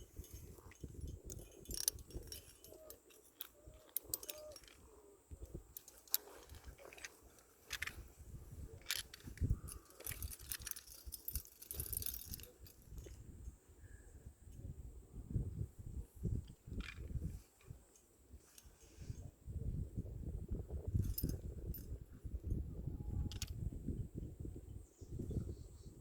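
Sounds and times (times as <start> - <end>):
metal climbing gear clinking: 0.0 - 13.2, 16.4 - 19.0, 20.8 - 23.7.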